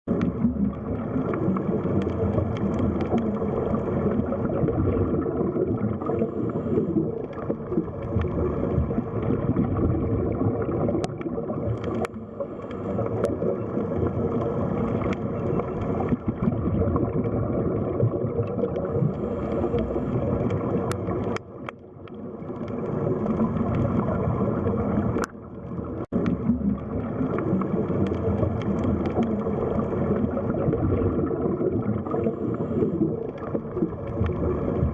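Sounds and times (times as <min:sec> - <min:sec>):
underwater gurgling and bubbling: 0:00.1 - 0:34.9
faint sharp clicks: 0:01.8 - 0:03.8, 0:11.0 - 0:13.8, 0:14.8 - 0:16.2, 0:19.1 - 0:23.9, 0:25.2 - 0:25.4, 0:27.9 - 0:29.5.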